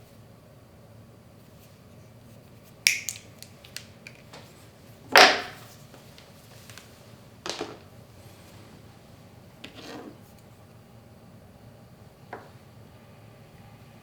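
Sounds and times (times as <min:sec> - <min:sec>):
sharp clicks of small objects: 0:02.9 - 0:04.3.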